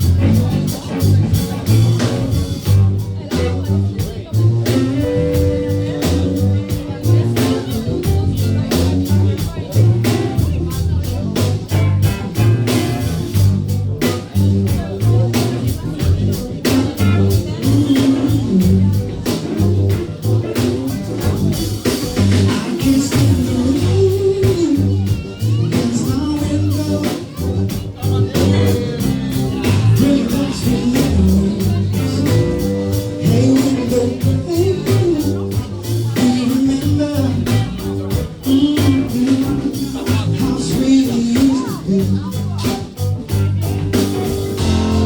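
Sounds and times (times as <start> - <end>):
bass: 0.0 - 45.0
guitar: 0.0 - 45.0
steady drum beat: 0.0 - 45.0
person singing lead: 22.6 - 42.6.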